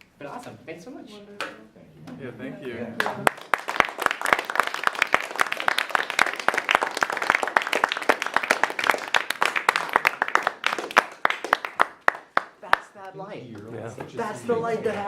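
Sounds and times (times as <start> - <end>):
audience clapping: 3.0 - 14.1
people talking: 12.6 - 15.0.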